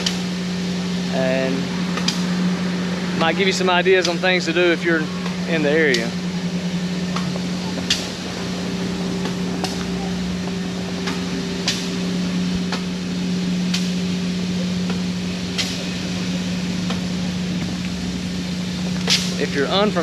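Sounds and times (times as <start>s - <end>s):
locomotive idling hum: 0.0s - 20.0s.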